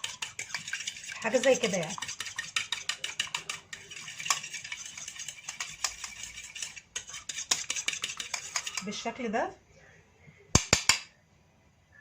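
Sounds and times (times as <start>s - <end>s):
whisk clicking against bowl: 0.0s - 8.9s.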